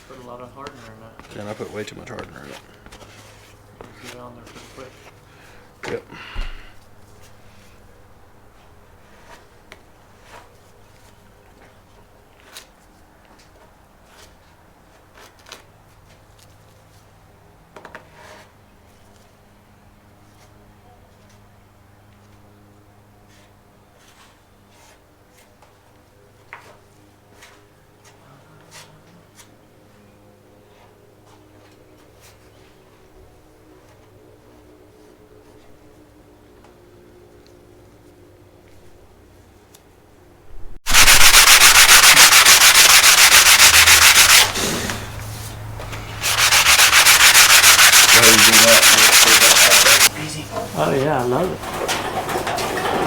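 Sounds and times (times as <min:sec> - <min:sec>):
power sander sanding: 0:40.9 - 0:51.6
spreader scraping body filler: 0:40.9 - 0:53.0.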